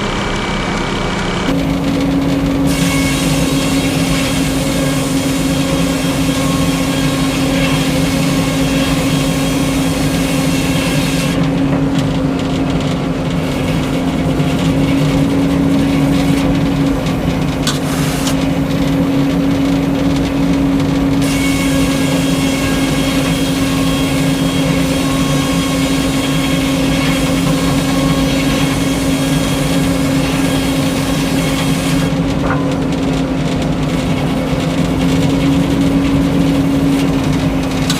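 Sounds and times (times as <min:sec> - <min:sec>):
engine drone: 0:00.0 - 0:37.9
sawmill hiss: 0:02.6 - 0:11.4.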